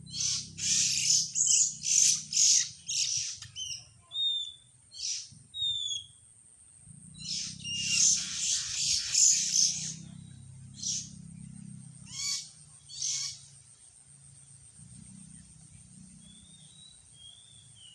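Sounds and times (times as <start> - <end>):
harsh rasping bird chatter: 0.0 - 6.0, 7.1 - 13.6.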